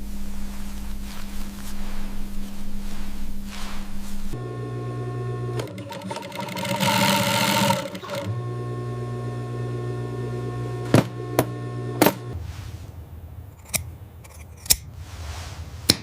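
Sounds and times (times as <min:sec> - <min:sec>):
sewing machine motor hum: 0:04.4 - 0:12.4.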